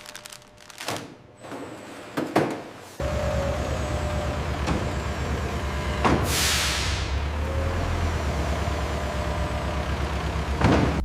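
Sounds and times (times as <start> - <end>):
truck diesel engine running: 3.0 - 11.0
air brake hiss: 6.2 - 7.2.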